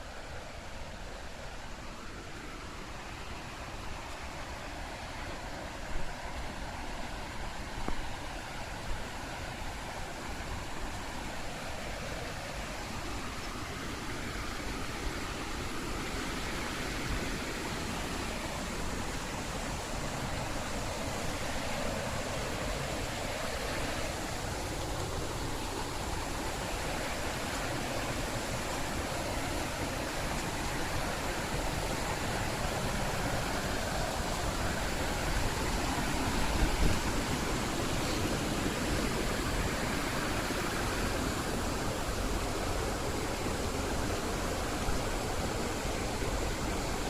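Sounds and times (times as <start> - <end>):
rushing white water: 0.0 - 47.0.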